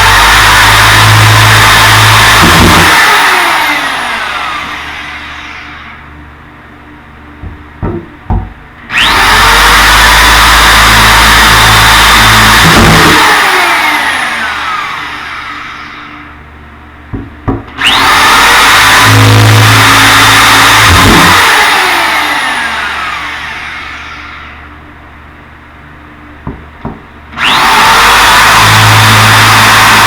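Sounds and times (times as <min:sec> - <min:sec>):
electric power drill whining: 0:00.0 - 0:06.1, 0:08.9 - 0:16.4, 0:17.8 - 0:24.7, 0:27.4 - 0:30.0
drill trigger clicks: 0:27.4 - 0:30.0.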